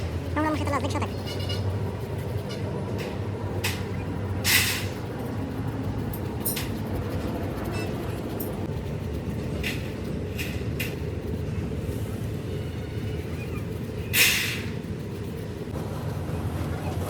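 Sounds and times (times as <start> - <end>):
low mechanical rumble: 0.0 - 17.0
short hissing noises: 14.1 - 14.9.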